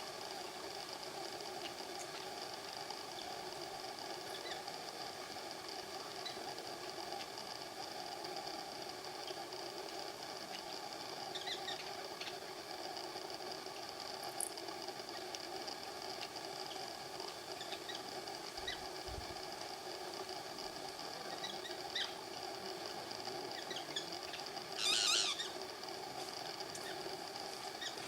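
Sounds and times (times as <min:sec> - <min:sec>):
faint high chirps: 0:23.6 - 0:25.6.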